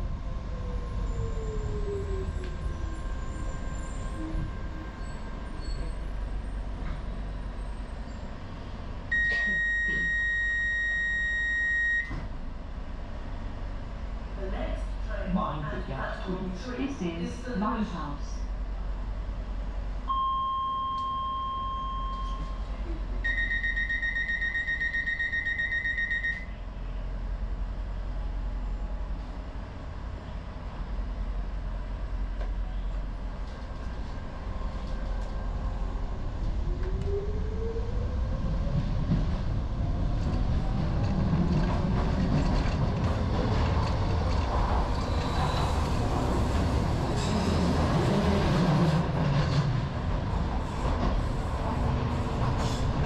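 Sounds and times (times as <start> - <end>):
train wheel and running noise: 0.0 - 20.2, 20.9 - 53.0
door-closing alarm: 9.1 - 12.2, 23.2 - 26.5
short beep: 9.1 - 12.2, 20.1 - 22.6, 23.2 - 26.6.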